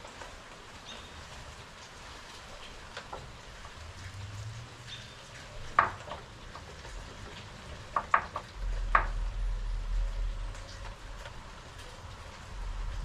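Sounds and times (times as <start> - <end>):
light clicks and taps on wood: 5.3 - 9.2
low rumble: 8.6 - 11.5, 12.5 - 13.0.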